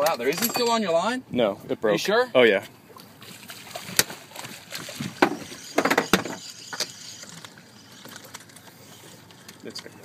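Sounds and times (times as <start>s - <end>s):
water sloshing: 2.8s - 9.8s.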